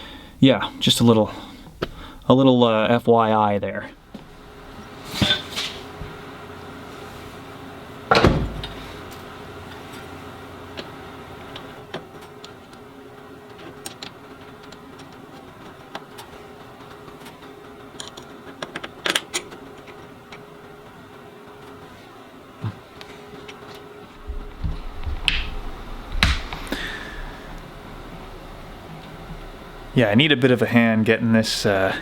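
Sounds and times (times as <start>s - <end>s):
faint steady hum: 0.0s - 32.0s
parts being handled and set down: 5.0s - 6.2s, 8.1s - 10.1s
heavy thump: 8.1s - 8.8s, 24.2s - 26.6s.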